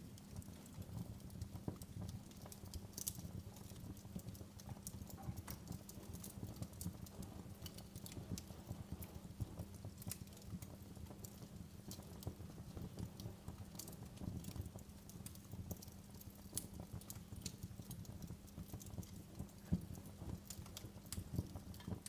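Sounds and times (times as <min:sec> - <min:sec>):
fireplace flames rumbling: 0:00.0 - 0:22.0
logs crackling and popping: 0:00.0 - 0:22.0.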